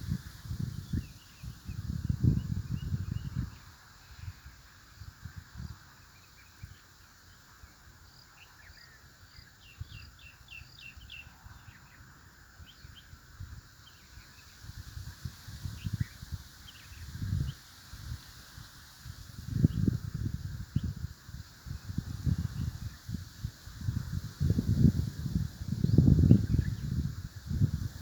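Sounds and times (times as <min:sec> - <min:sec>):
small birds chirping: 0:06.0 - 0:18.5.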